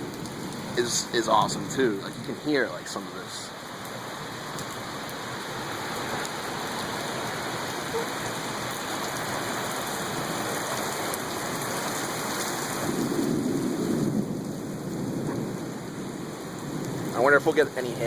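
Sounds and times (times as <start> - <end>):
pouring rain: 0.0 - 18.0
low rumble of thunder: 12.0 - 18.0.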